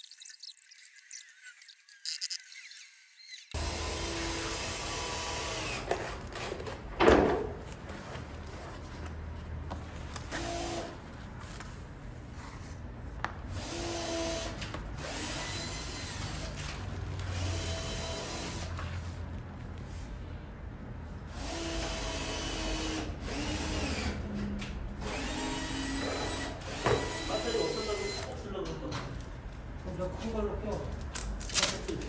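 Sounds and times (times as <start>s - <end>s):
power drill whining: 3.5s - 6.0s, 13.6s - 16.6s, 17.2s - 18.8s, 21.3s - 24.2s, 25.0s - 28.3s.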